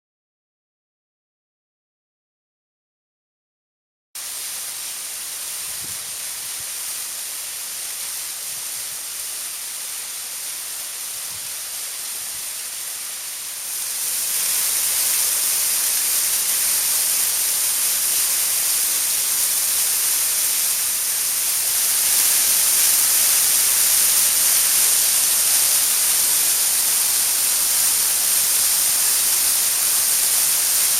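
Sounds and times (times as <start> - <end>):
waterfall rushing: 13.7 - 30.9.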